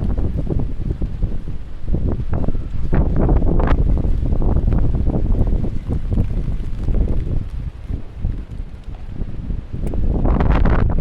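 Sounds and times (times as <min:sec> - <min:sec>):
wind gusting across microphone: 0:00.0 - 0:11.0.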